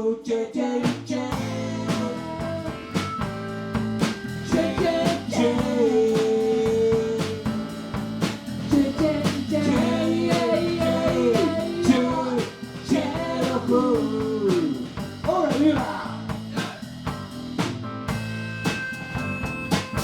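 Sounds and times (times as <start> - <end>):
person singing: 0.0 - 3.1, 4.4 - 7.6, 8.7 - 16.2
drum kit: 0.8 - 20.0
guitar: 0.8 - 20.0.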